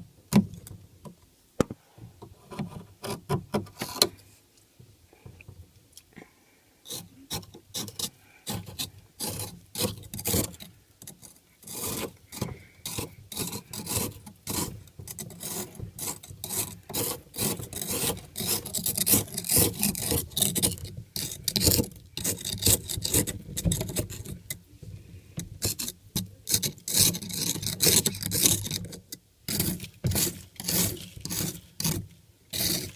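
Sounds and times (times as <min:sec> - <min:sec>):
ice being scraped: 0:06.9 - 0:24.6, 0:25.6 - 0:32.9.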